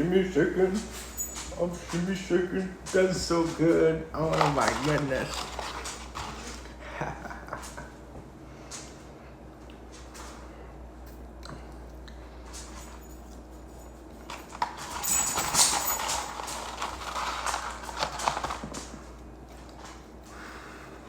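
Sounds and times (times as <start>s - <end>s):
steady low hum: 0.0s - 21.0s
eating clicks and rustling: 4.2s - 6.7s.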